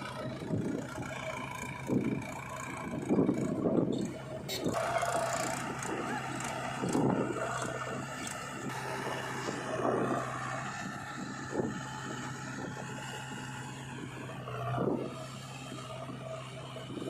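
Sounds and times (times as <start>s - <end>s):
diesel engine under load: 0.0s - 17.0s.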